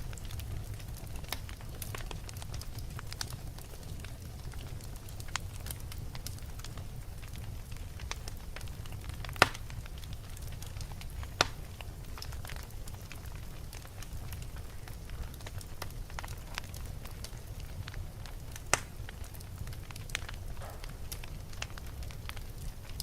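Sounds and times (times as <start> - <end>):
fireplace fire crackling: 0.0 - 23.0
loud sharp pops: 9.3 - 9.8, 18.7 - 18.9.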